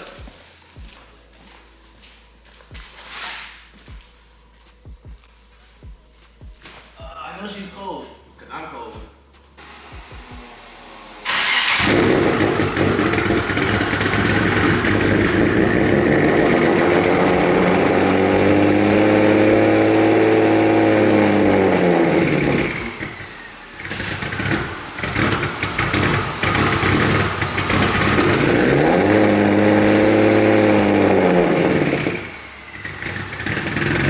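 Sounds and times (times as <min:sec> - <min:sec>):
car engine cranking: 0:09.6 - 0:34.0
car engine fast idling: 0:09.6 - 0:34.0.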